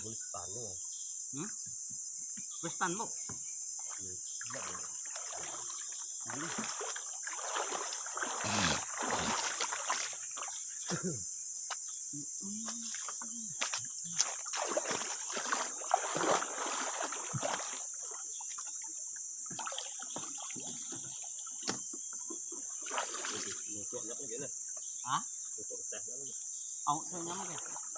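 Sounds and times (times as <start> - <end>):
insects droning: 0.0 - 27.9
water splashing and sloshing: 3.8 - 11.0, 12.7 - 24.2, 27.0 - 27.9.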